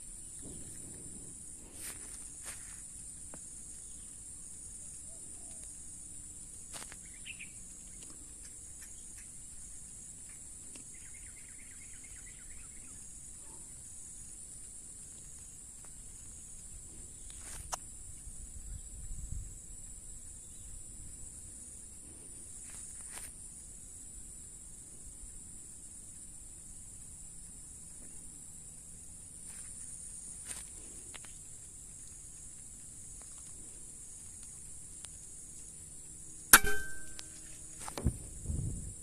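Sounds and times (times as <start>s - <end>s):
faint bird chirps: 7.0s - 8.2s, 10.8s - 13.9s.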